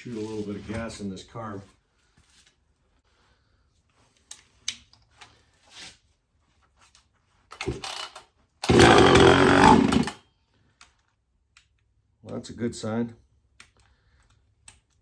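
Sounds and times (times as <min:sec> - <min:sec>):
starter cord rasp: 0:07.6 - 0:08.0, 0:08.6 - 0:10.2
chainsaw engine firing and running: 0:07.6 - 0:10.2.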